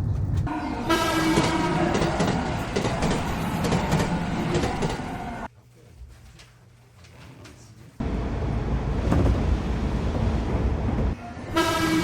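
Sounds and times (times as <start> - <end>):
train rattling: 0.0 - 5.5
train rumble: 0.0 - 5.5, 8.0 - 12.0.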